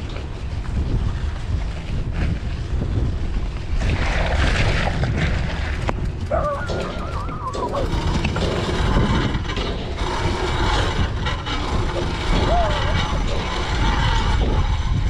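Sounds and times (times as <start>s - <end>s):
wind buffeting microphone: 0.0s - 15.0s
street noise: 5.0s - 15.0s
wavering high-pitched sound: 6.3s - 8.2s.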